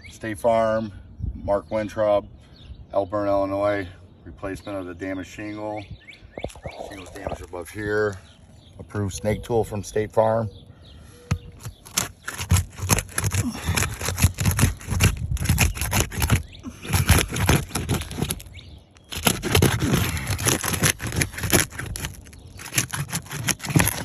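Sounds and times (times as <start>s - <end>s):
tool scraping under shingles: 11.2s - 24.0s
clicks and crackles: 11.3s - 24.0s.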